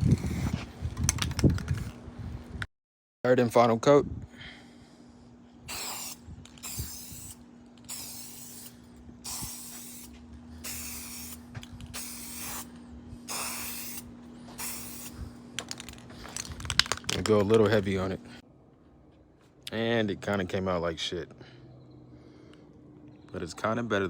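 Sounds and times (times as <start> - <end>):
aerosol can spraying: 5.7 - 15.3.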